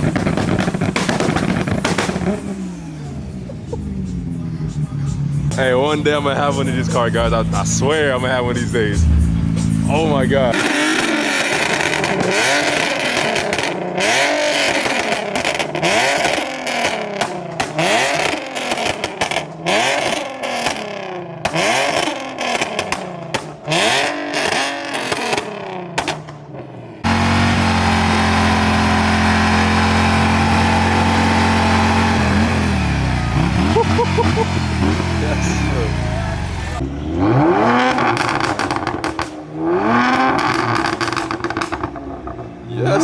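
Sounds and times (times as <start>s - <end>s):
steady engine drone: 0.0s - 14.0s, 27.0s - 43.0s
car engines revving: 0.0s - 43.0s.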